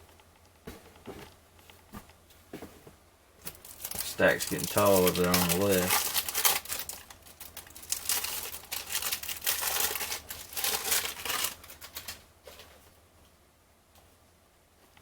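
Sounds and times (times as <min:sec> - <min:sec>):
cellophane wrapper crinkling: 0:03.4 - 0:12.8.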